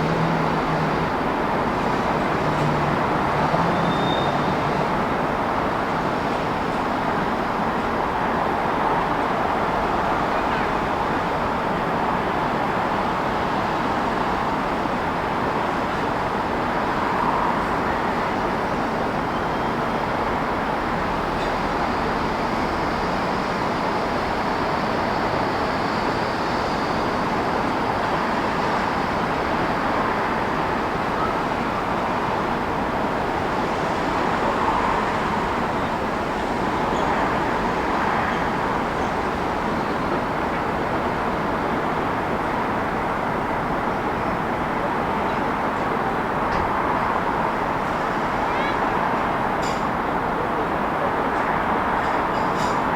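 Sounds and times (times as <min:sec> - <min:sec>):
city traffic passing: 0:00.0 - 0:52.9.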